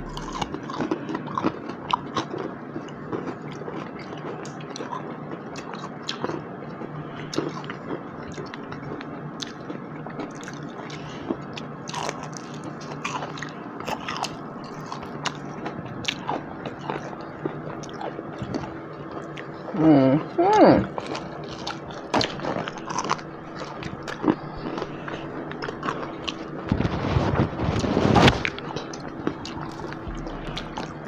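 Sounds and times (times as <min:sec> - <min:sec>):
faint low hum: 0:00.0 - 0:00.8, 0:16.5 - 0:31.0.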